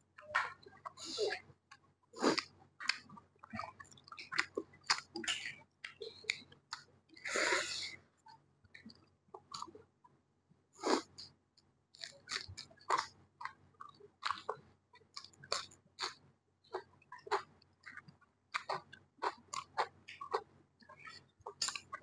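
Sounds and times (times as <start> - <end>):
chewing and wet mouth smacks: 1.7 - 6.9, 12.0 - 22.0.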